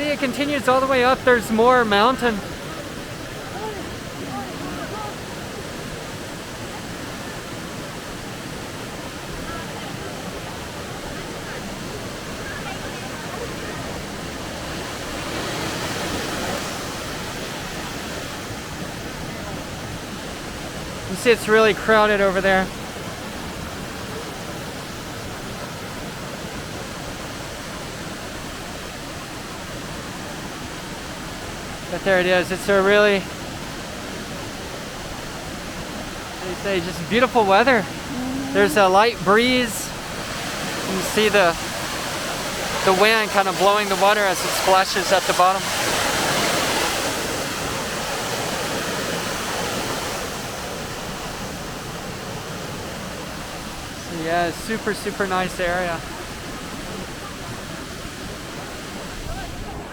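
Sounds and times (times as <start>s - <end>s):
waterfall rushing and splashing: 0.0s - 59.9s.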